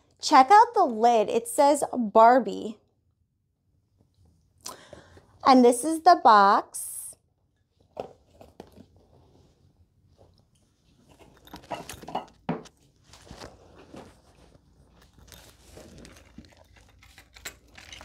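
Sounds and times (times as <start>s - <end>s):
packaging crinkling and scraping: 11.0s - 18.0s.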